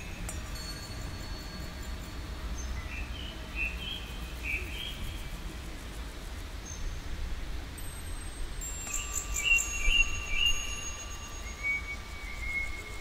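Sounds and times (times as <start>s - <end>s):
bird chirps: 1.4s - 5.3s, 8.9s - 13.0s.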